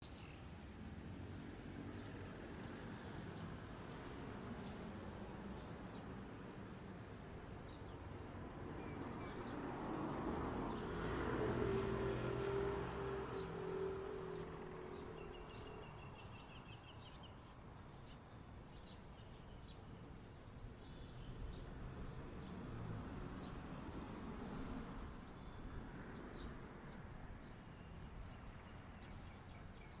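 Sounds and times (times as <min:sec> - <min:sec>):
distant city traffic rumble: 0:00.0 - 0:30.0
birds chirping: 0:27.2 - 0:30.0.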